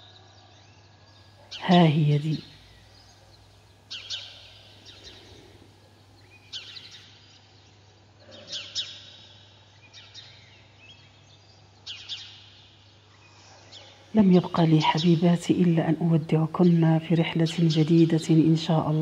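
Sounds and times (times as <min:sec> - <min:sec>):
faint steady hum: 0:01.1 - 0:07.0, 0:14.1 - 0:19.0
songbird calling: 0:01.5 - 0:05.6.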